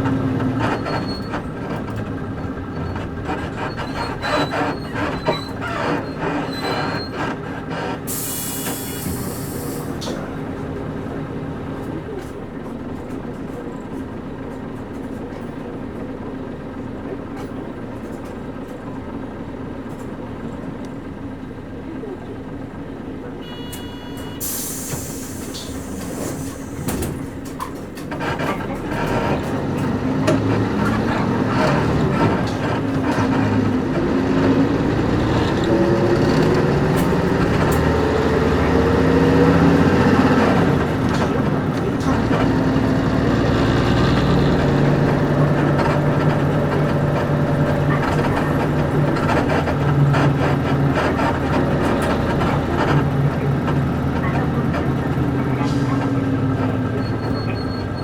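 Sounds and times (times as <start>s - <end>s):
bus diesel engine accelerating: 0.0s - 58.0s.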